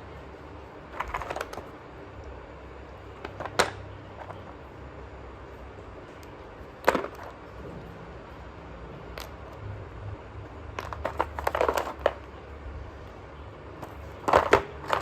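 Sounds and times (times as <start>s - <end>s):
slate pencils cracking: 0.9s - 4.7s, 10.4s - 15.0s.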